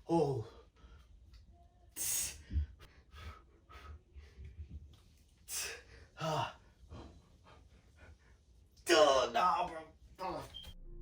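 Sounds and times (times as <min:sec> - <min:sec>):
man breathing hard: 0:02.0 - 0:04.5.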